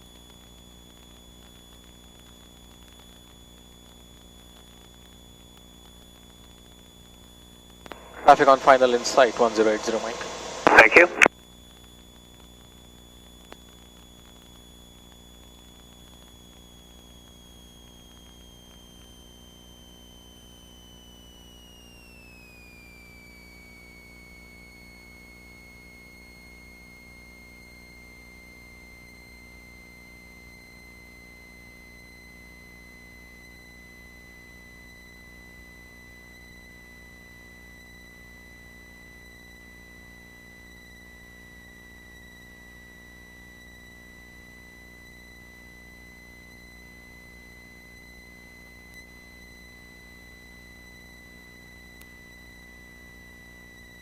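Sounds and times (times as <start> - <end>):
high-pitched whine: 0.0 - 54.0
cockpit low hum: 6.5 - 12.4.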